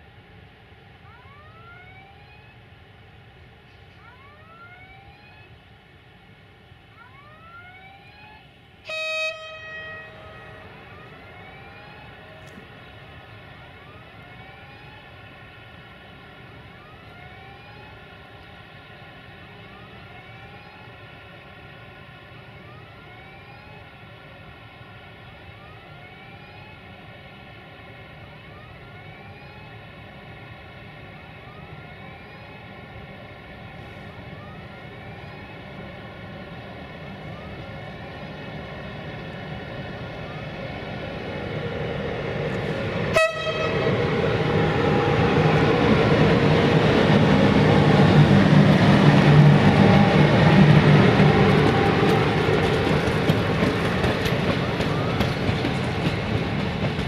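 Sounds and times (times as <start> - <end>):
low train rumble: 0.0 - 57.0
train horn blast: 8.8 - 11.1, 43.1 - 44.1
rising whine: 34.3 - 55.5.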